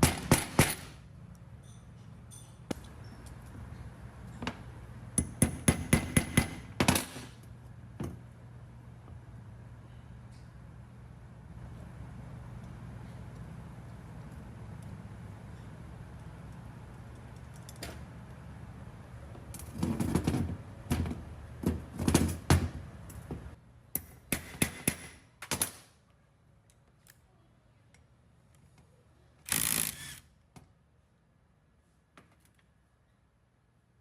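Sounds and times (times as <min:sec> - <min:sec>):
steady low hum: 0:00.0 - 0:25.4
hard parts knocking and clattering: 0:19.6 - 0:23.4.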